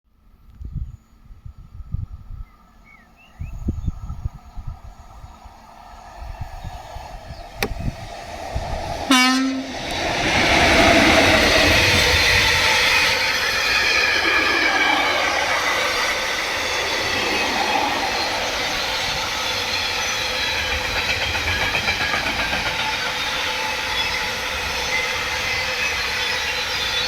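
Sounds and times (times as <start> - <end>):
electric locomotive approaching: 2.6 - 27.0
wheels rumbling on rail: 3.3 - 27.0
wind thumps on microphone: 6.3 - 9.1
train horn blast: 9.1 - 9.8.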